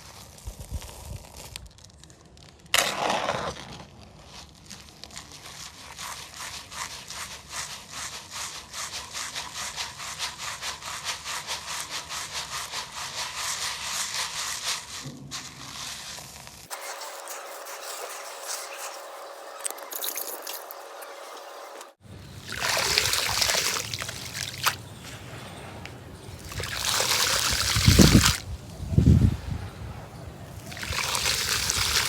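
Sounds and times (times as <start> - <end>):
cement powder being sifted: 0.0 - 32.0
rush of grit: 22.4 - 25.8, 26.4 - 32.0.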